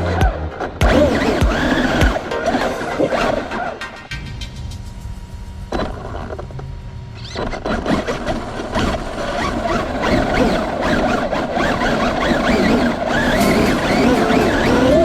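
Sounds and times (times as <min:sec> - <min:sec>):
electric motor whining: 0:00.8 - 0:03.8, 0:07.1 - 0:15.0
tyre squeal: 0:11.8 - 0:15.0.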